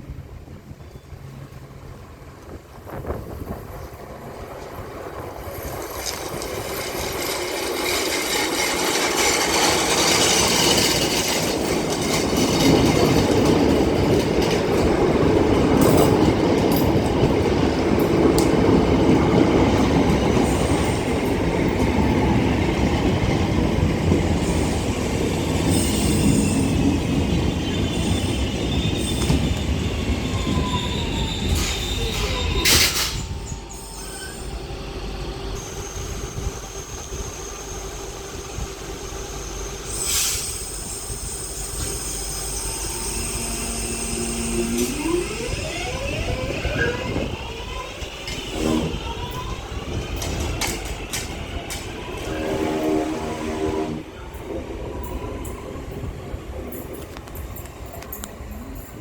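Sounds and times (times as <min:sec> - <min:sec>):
train wheels rumbling on rails: 0:00.0 - 0:59.0
falling squeals: 0:24.4 - 0:35.0, 0:35.6 - 0:53.4.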